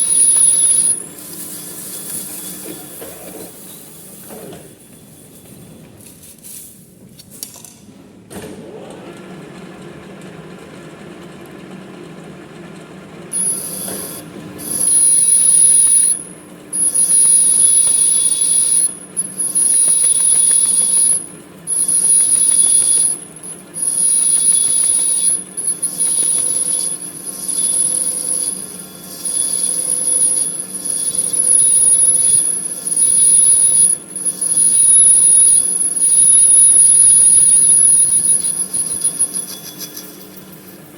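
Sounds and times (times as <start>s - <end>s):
cutting tool squealing on metal: 0.0s - 4.0s, 13.4s - 40.9s
lathe motor hum: 9.4s - 40.9s.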